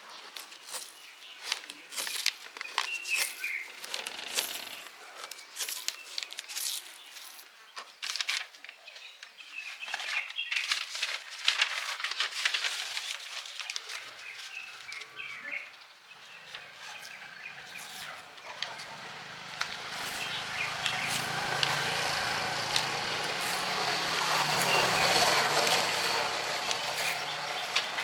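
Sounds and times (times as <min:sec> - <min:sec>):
low engine hum: 0:17.4 - 0:28.0.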